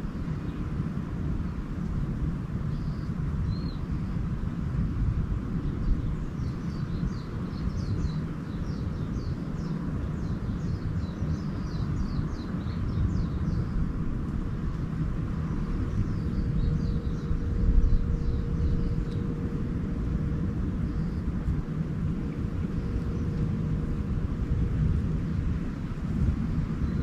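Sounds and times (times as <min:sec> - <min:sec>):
low outdoor rumble: 0:00.0 - 0:27.0
small bird twittering song: 0:02.7 - 0:04.2, 0:05.6 - 0:14.0, 0:14.7 - 0:24.0, 0:26.8 - 0:27.0.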